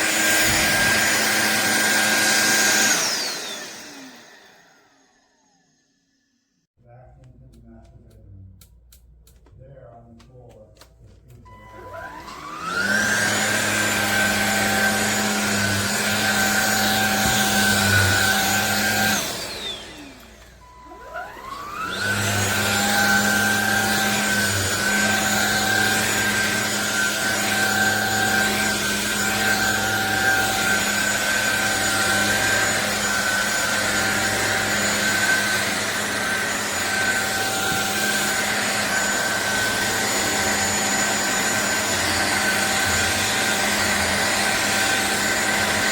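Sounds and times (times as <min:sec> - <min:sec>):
stick vacuum motor whine: 0:00.0 - 0:06.2, 0:11.3 - 0:45.9.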